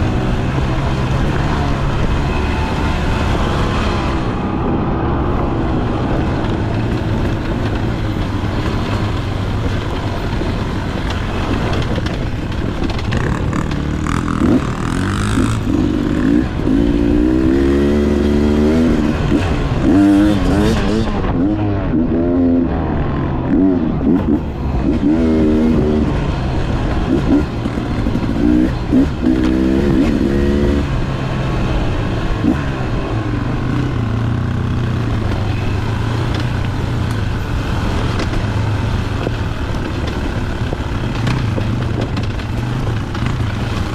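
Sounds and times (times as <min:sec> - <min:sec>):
dirt bike engine revving: 0:13.1 - 0:31.4.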